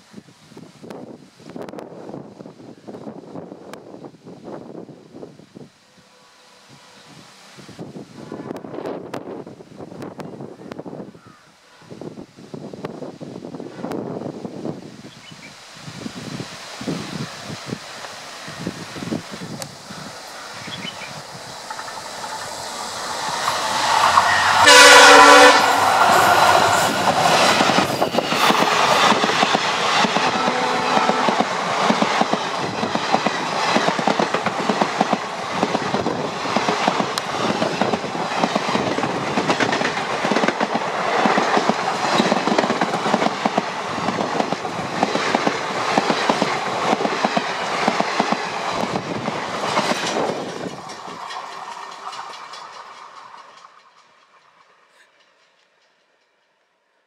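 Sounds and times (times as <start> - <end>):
locomotive horn: 5.9 - 7.1, 24.1 - 26.8, 30.2 - 31.4
train wheels clattering over rail joints: 21.6 - 24.6, 25.7 - 56.5.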